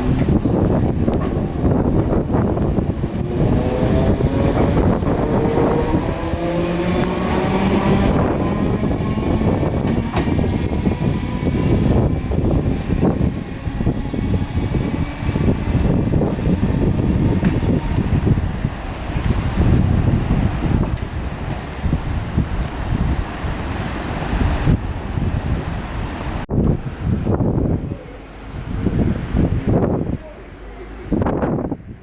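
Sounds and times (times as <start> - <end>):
wind buffeting microphone: 0.0 - 32.0
train motor whine: 0.1 - 22.0.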